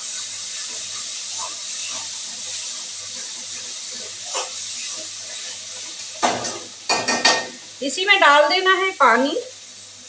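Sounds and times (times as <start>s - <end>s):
paste sizzling in hot oil: 0.0s - 10.0s
spatula knocking and scraping pan: 0.6s - 7.6s.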